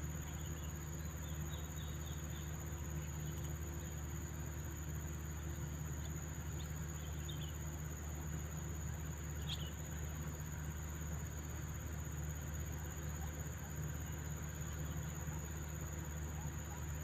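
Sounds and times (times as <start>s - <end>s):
faint bird chirps: 0.2s - 3.9s, 6.6s - 7.6s, 9.3s - 9.9s.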